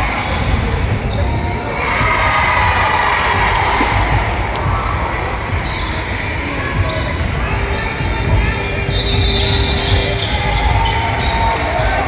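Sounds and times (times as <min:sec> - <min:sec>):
basketball bouncing on court: 0:00.0 - 0:12.0
crowd noise: 0:00.0 - 0:12.0.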